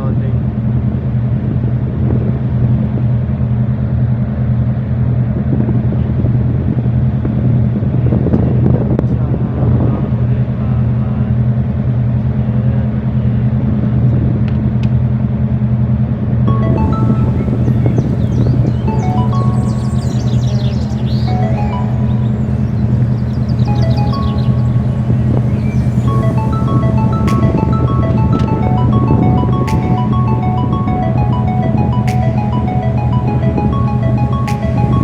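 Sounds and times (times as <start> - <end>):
boat diesel engine drone: 0.2 - 35.0
diesel engine droning: 16.2 - 32.0
short melodic music notes: 16.5 - 35.0.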